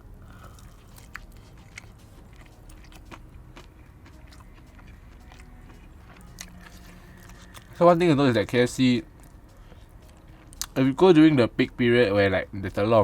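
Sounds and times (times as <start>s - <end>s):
person chewing crunchy food: 0.0s - 8.5s, 9.1s - 10.8s.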